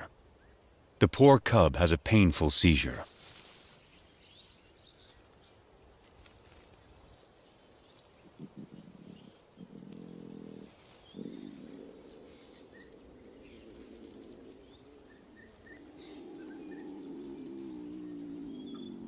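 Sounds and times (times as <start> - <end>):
insects buzzing: 0.0 - 19.0
birds chirping: 1.8 - 6.0, 6.7 - 19.0
lion cub moaning: 8.2 - 19.0.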